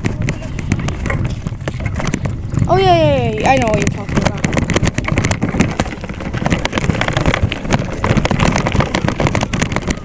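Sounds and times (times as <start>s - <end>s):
bike rattling knocks: 0.0s - 10.0s
wind rumble on microphone: 0.0s - 10.0s.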